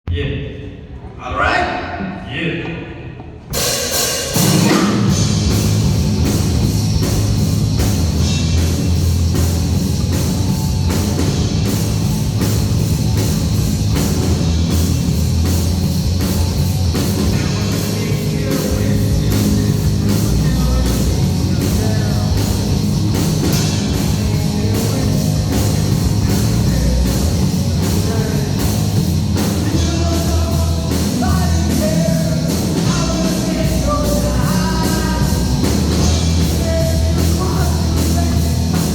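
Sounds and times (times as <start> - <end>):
drum beat: 3.2 - 38.9
heavy metal band playing: 3.5 - 38.9
person singing: 16.4 - 38.9.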